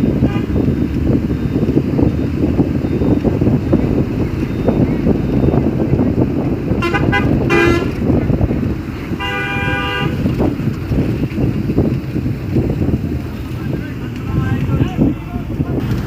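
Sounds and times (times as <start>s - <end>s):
road noise: 0.0s - 16.0s
wind noise: 0.0s - 16.0s
vehicle horns honking: 0.1s - 0.8s, 1.4s - 10.5s.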